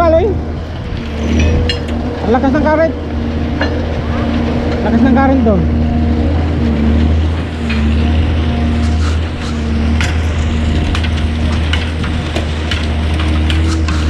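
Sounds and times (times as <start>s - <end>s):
boat motor humming: 0.0s - 14.0s
sharp clicks and knocks: 6.9s - 14.0s.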